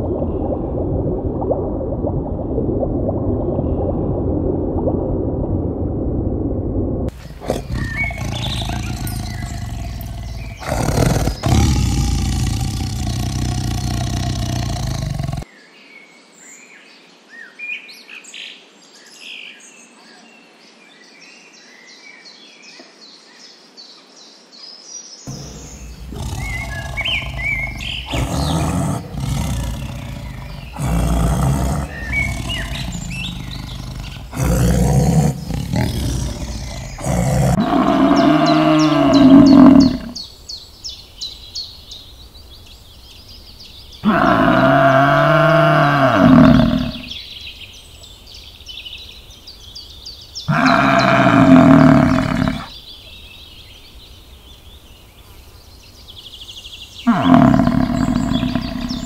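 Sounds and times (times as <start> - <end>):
tiger growling and roaring: 7.1 - 15.5, 25.3 - 40.2, 44.0 - 47.2, 50.5 - 52.7, 57.1 - 59.0
small birds chirping: 7.1 - 15.8, 22.7 - 59.0.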